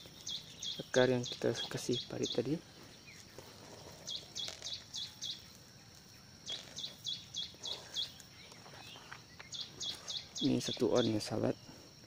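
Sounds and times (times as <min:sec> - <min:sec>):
bird high chirps: 0:00.0 - 0:11.6.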